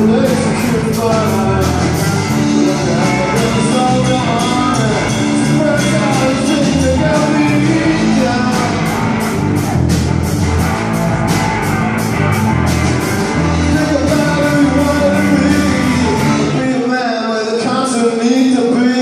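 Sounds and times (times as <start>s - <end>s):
blues-rock band playing: 0.0s - 17.0s.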